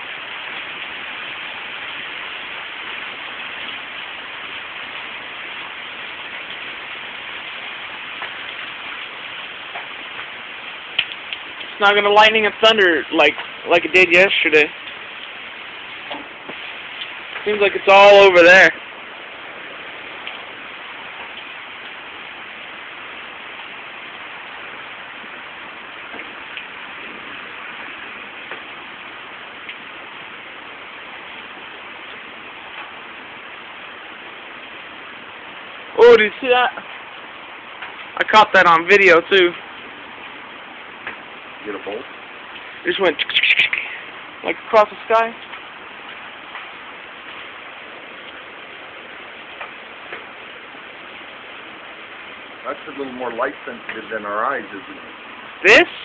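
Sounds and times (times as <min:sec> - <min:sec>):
heavy rain: 0:00.0 - 0:56.0
sharp drip ticks: 0:07.4 - 0:17.6, 0:26.1 - 0:26.8, 0:41.9 - 0:44.2.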